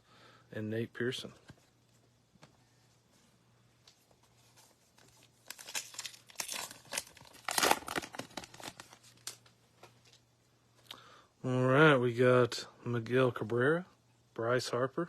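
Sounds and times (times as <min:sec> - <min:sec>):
plastic wrapper tearing and crinkling: 0:05.0 - 0:09.5.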